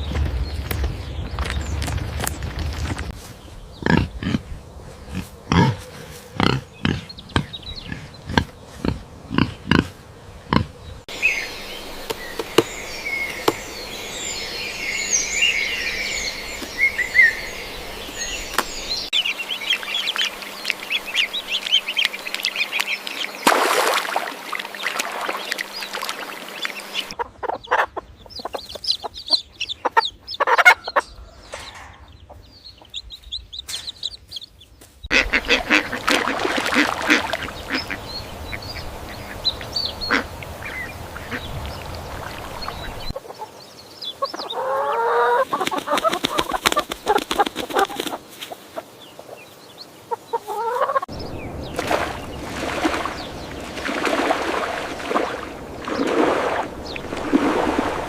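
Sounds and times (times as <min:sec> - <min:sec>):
poultry calls: 0:24.6 - 0:31.6, 0:35.1 - 0:51.1.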